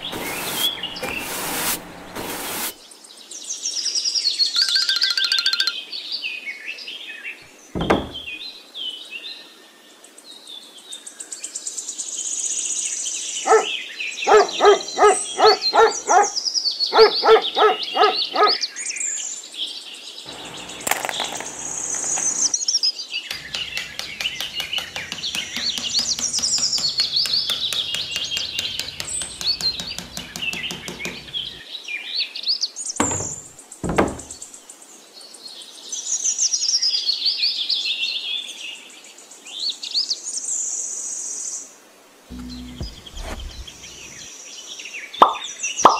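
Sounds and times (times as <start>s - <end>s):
rapidly repeated bird calls: 13.4s - 18.7s
birds chirping and singing: 13.4s - 18.8s, 20.3s - 22.5s, 23.3s - 31.6s, 42.3s - 44.3s.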